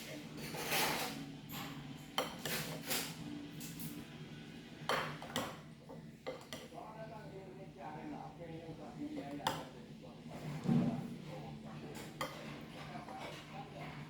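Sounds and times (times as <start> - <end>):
cutlery clinking on plates: 0.0 - 4.0, 4.8 - 6.8, 10.4 - 14.0.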